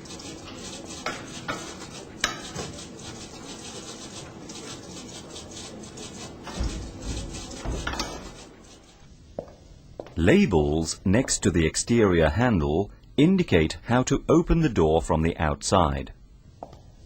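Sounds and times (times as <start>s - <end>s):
door hardware rubbing and scraping: 0.6s - 8.9s.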